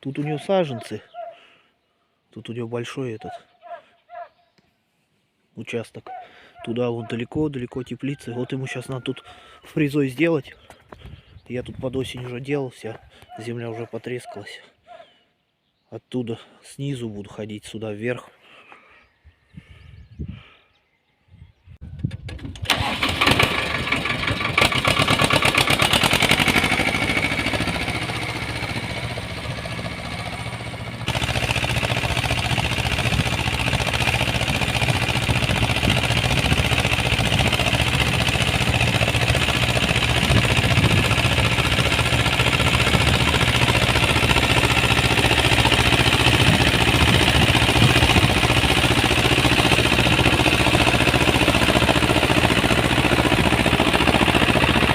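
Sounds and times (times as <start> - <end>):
tractor engine running: 22.2 - 54.9.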